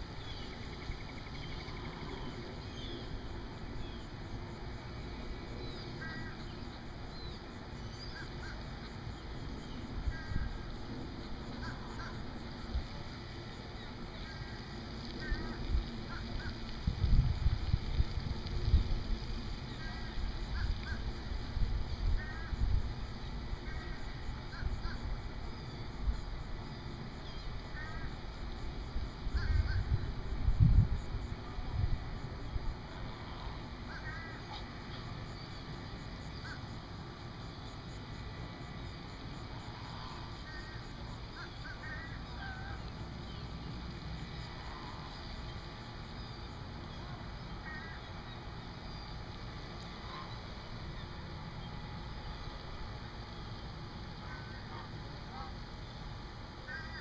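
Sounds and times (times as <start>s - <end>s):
low steady rumble: 0.0s - 57.0s
bird calls: 29.3s - 30.0s, 33.3s - 36.8s, 39.5s - 52.6s.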